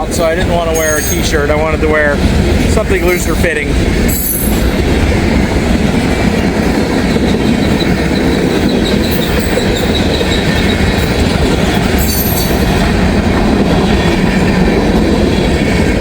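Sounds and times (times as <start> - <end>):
freight train cars rolling past: 0.0 - 16.0
high wheel squeal: 0.7 - 1.4, 7.2 - 11.2, 11.8 - 12.7.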